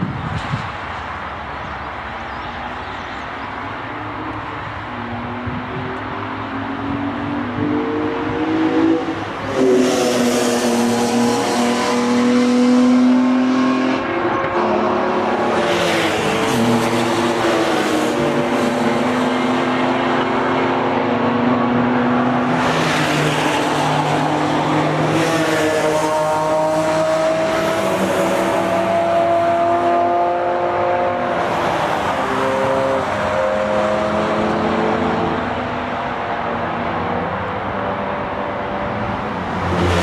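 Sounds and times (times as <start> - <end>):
race car engines revving: 0.0 - 40.0.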